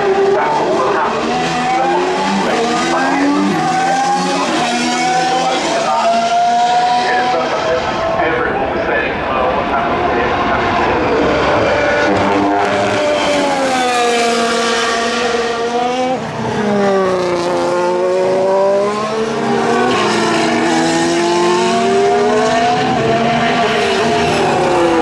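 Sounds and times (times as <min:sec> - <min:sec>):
racing car engines: 0:00.0 - 0:25.0.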